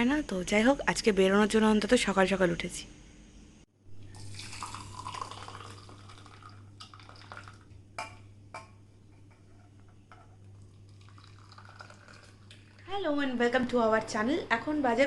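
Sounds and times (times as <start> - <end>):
water running and dripping: 4.2 - 7.7, 10.5 - 12.9.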